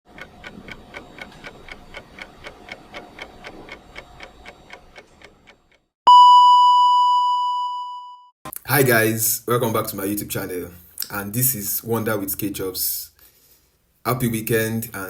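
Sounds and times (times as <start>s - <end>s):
clock ticking: 0.1s - 5.8s
bell ding: 6.1s - 8.2s.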